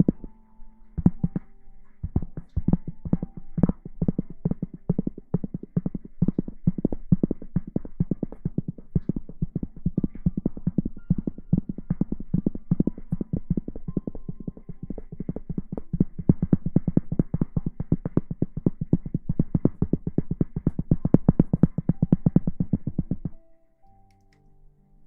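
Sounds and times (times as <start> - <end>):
faint steady tones: 0.0 - 25.0.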